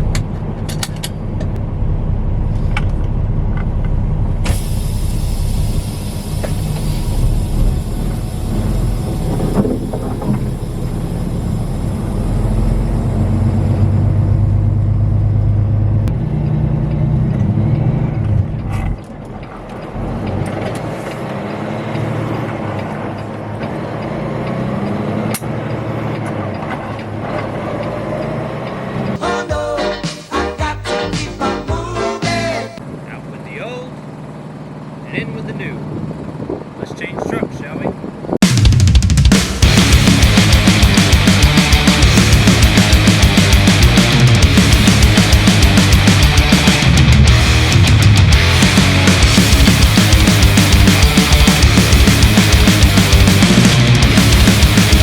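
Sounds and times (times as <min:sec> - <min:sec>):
truck engine running: 0:00.0 - 0:29.8, 0:32.8 - 0:37.2, 0:37.8 - 0:55.0
hiss: 0:04.5 - 0:12.7.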